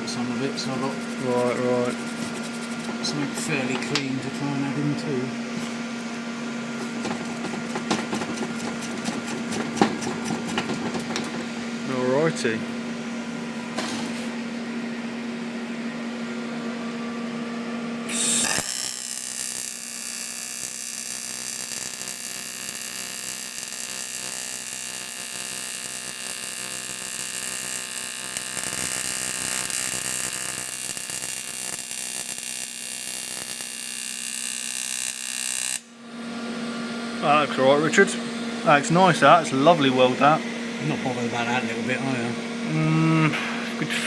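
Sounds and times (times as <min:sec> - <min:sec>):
welding arc buzzing hiss: 0:00.0 - 0:14.6, 0:18.0 - 0:44.0
steady hum: 0:00.0 - 0:18.4, 0:35.9 - 0:44.0.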